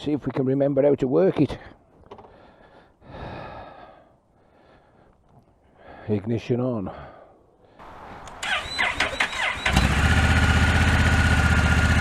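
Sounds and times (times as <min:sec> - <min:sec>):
engine starter cranking: 0:08.4 - 0:10.8
motorcycle engine idling: 0:08.4 - 0:12.0.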